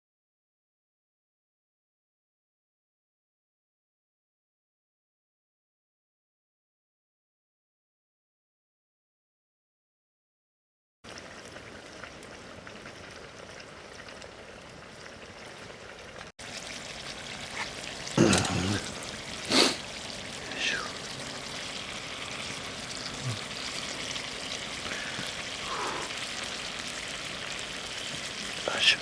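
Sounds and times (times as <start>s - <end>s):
food hissing over campfire: 11.1s - 29.0s.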